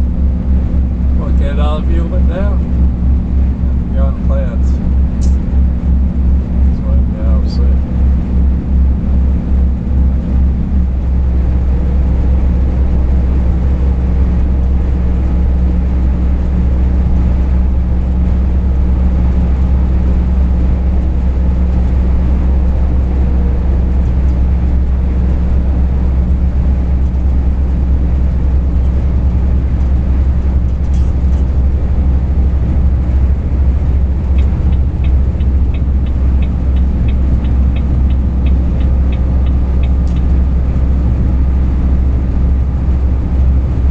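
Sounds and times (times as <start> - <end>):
truck engine and road noise: 0.0 - 43.9
light ticking: 34.2 - 40.4.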